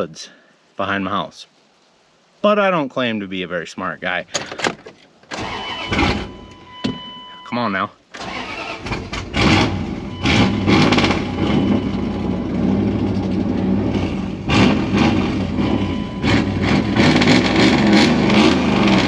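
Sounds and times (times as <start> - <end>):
truck engine revving roughly: 5.4 - 6.4, 8.2 - 19.0.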